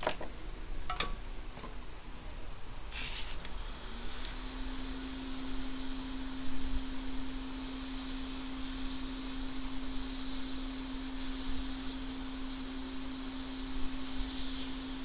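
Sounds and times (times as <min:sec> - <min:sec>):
even hiss: 0:02.9 - 0:15.0.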